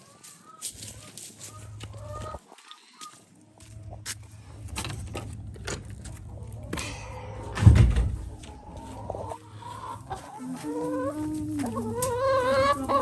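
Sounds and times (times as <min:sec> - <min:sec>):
farm animals calling: 0:00.0 - 0:03.9, 0:08.4 - 0:13.0
low thump: 0:06.8 - 0:08.5.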